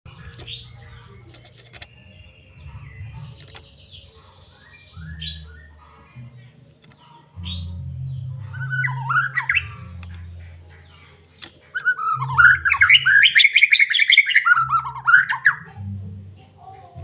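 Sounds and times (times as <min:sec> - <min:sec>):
low background hum: 0:00.1 - 0:13.5
bird singing whistled notes: 0:03.8 - 0:06.3, 0:07.4 - 0:09.9, 0:11.7 - 0:15.7.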